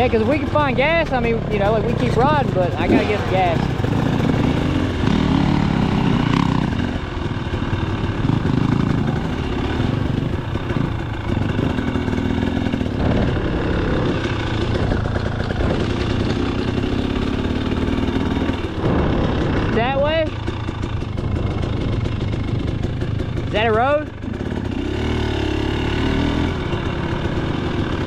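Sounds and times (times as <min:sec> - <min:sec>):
dirt bike two-stroke engine revving: 0:00.0 - 0:28.0.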